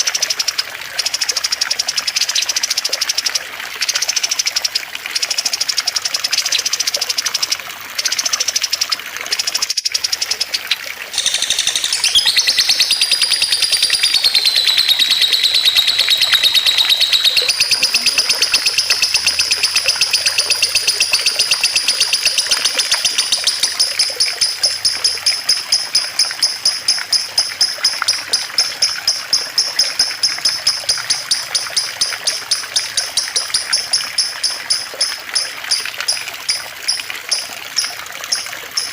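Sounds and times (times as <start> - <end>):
running water babbling: 0.0 - 38.9
songbird trilling: 9.6 - 38.9.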